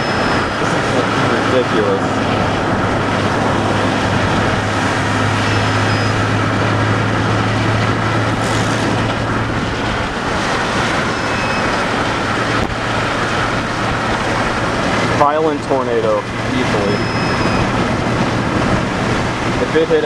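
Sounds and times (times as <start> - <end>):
vehicle noise inside car: 0.0 - 20.0.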